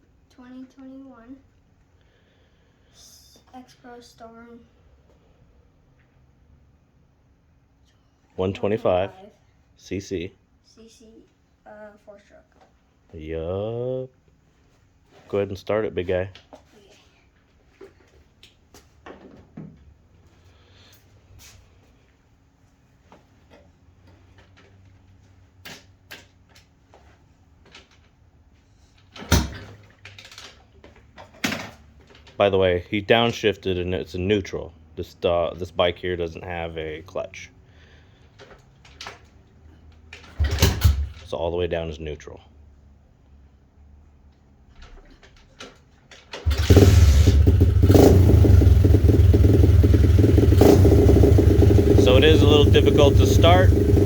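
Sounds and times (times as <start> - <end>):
motorbike engine starting and running: 40.2 - 41.2, 46.3 - 54.0.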